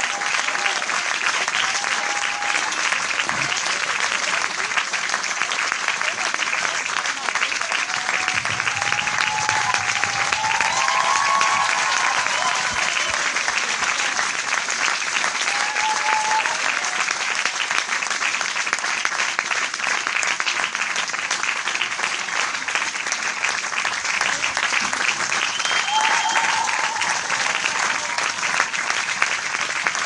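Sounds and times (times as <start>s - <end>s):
crowd applauding: 0.0s - 30.0s
faint voice or whistle: 25.4s - 26.7s.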